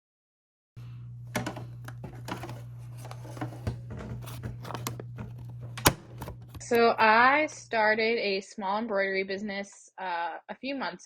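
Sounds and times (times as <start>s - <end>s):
embroidery machine humming: 0.8s - 7.8s.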